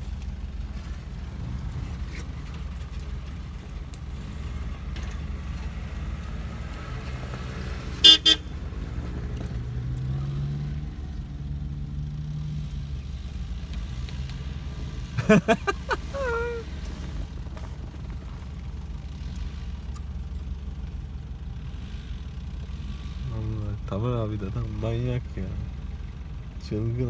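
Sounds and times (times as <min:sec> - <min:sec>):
off-road engines running slowly: 0:00.0 - 0:27.0
car horn toots: 0:08.0 - 0:08.5.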